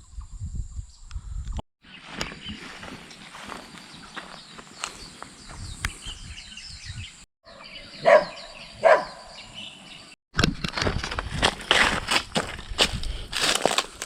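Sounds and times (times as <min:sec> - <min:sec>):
birds chirping: 0:00.0 - 0:10.2.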